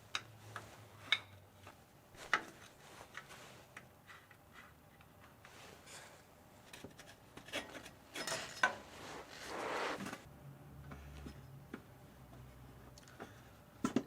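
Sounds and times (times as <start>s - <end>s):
short scraping rub: 8.8s - 10.3s.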